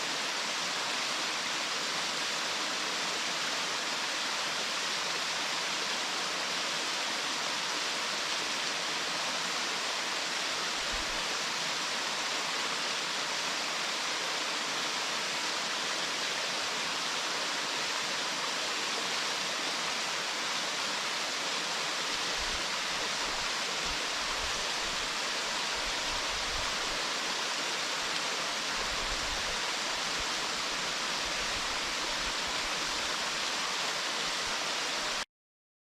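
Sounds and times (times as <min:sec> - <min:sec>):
waterfall rushing: 0:00.0 - 0:35.2.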